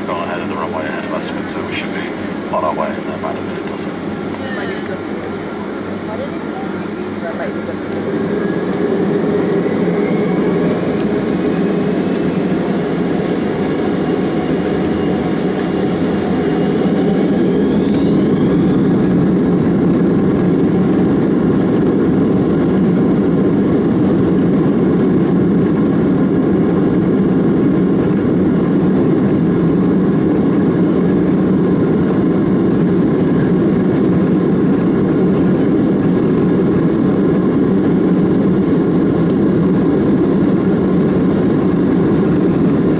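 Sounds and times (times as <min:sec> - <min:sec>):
jet engines spooling up: 0:00.0 - 0:24.6.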